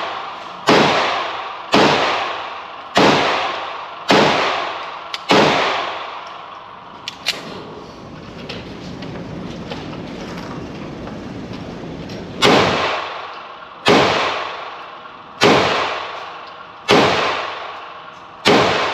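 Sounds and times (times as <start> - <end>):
handgun shots echoing: 0.0 - 6.4, 12.4 - 18.9.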